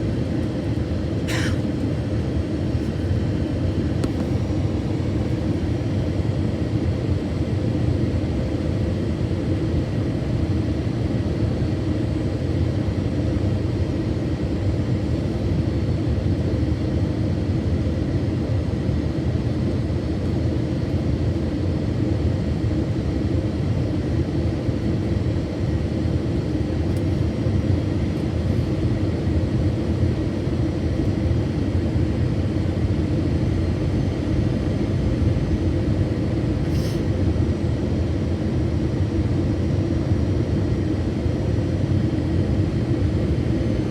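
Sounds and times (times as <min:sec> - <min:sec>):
airplane cabin rumble: 0:00.0 - 0:06.6.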